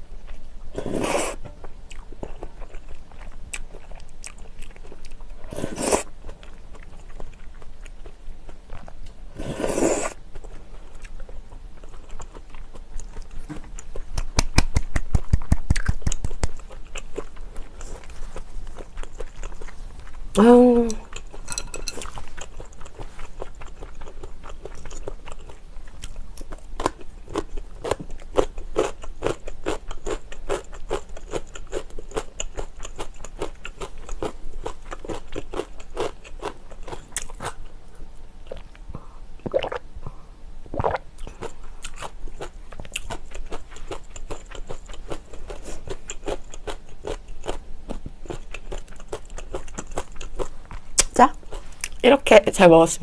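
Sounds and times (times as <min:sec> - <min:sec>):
person chewing crisp crunches: 0:15.4 - 0:20.3, 0:21.0 - 0:37.7, 0:40.8 - 0:52.0.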